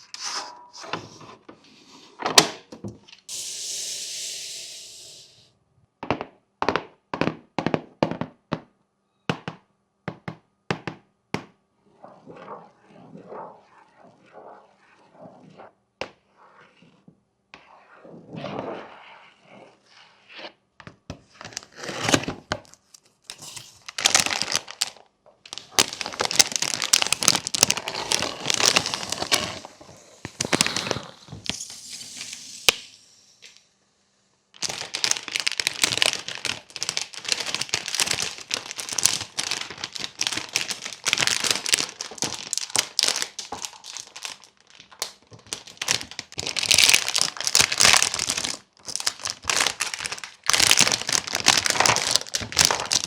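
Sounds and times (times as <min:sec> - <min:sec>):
packaging crinkling and tearing: 0:21.5 - 0:31.6, 0:34.6 - 0:53.0.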